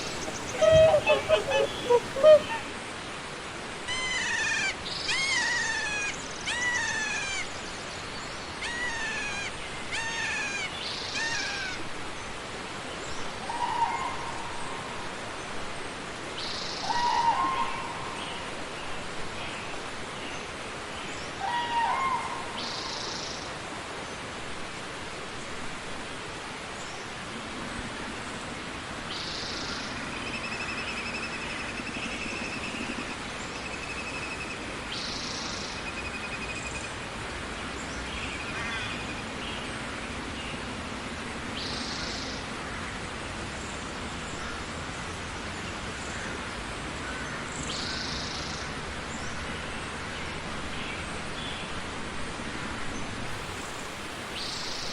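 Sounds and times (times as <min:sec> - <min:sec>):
bird trilling: 0:00.0 - 0:02.7
birds calling: 0:00.0 - 0:02.7, 0:53.3 - 0:54.9
steady hiss: 0:53.2 - 0:54.9.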